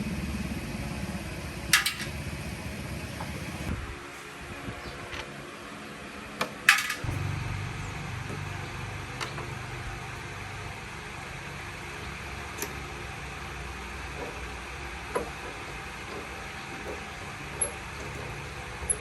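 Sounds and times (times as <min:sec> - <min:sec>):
steady low hum: 0:00.0 - 0:05.2, 0:05.9 - 0:15.1
metal tools clinking: 0:01.7 - 0:02.1, 0:06.7 - 0:07.1.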